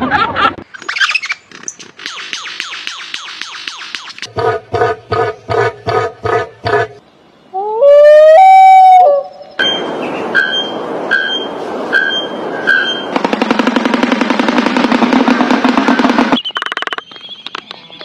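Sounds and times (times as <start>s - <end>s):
animal call rising in pitch: 7.6s - 9.3s.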